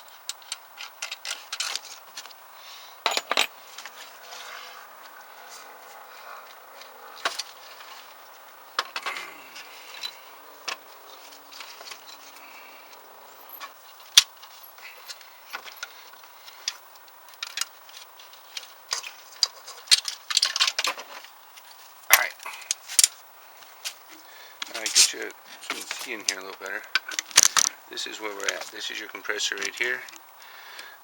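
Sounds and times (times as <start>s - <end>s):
metal tools clinking on engine parts: 3.0s - 4.8s, 8.8s - 21.2s, 24.6s - 30.3s.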